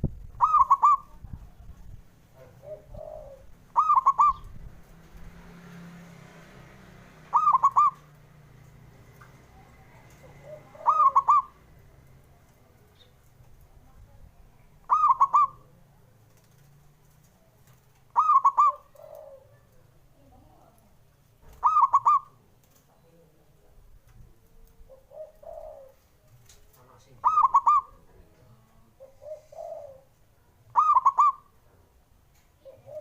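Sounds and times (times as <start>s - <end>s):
dove cooing: 0.3s - 4.7s, 7.2s - 8.2s, 9.9s - 11.7s, 14.8s - 15.9s, 17.4s - 20.7s, 21.5s - 22.5s, 24.3s - 26.4s, 27.0s - 31.6s, 32.6s - 33.0s.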